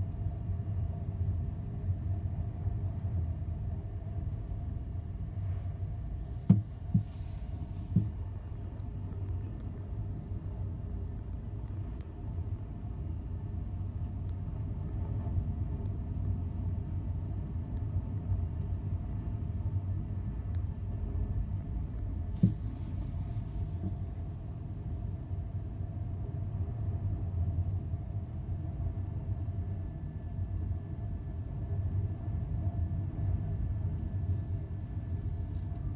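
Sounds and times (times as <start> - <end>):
faint steady hum: 0.0 - 35.9
sharp knock: 6.4 - 7.3.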